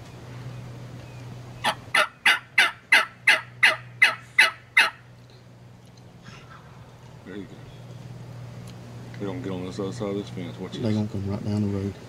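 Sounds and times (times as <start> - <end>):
turkey yelps: 1.6 - 5.0.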